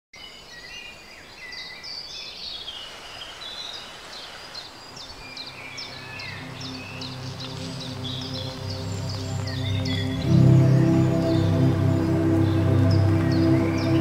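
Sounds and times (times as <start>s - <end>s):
birds singing: 0.2s - 14.0s
low sustained music tones: 4.6s - 14.0s.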